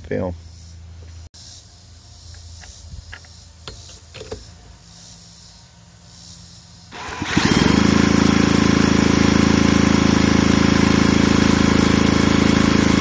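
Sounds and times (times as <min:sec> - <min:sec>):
power drill turning engine over: 0:06.9 - 0:13.0.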